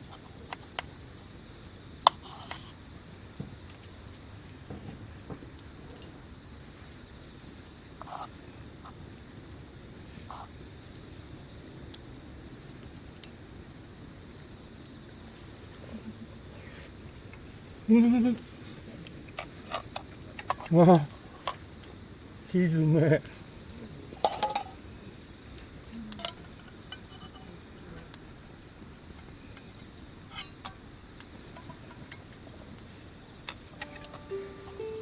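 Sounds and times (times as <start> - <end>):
insects chirping: 0.0 - 35.0.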